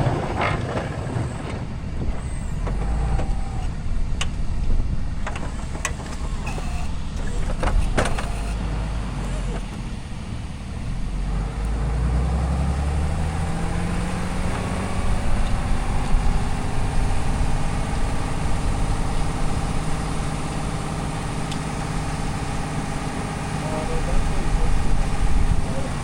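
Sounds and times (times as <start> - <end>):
pickup truck engine running: 0.0 - 11.7.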